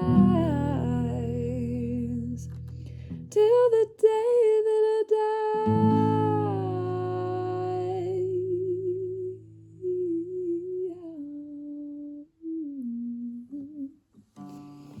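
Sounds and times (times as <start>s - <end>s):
person humming with vibrato: 5.7s - 14.0s.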